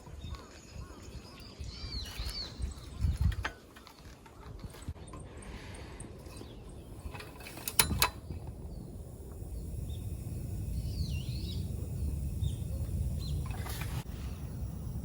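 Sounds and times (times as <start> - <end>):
low steady rumble: 6.7 - 15.0.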